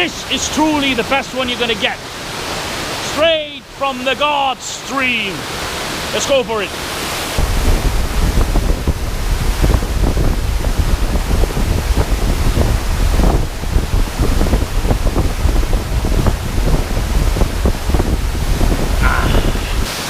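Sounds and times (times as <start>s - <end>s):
mountain stream rushing: 0.0s - 20.0s
wind buffeting microphone: 7.2s - 20.0s.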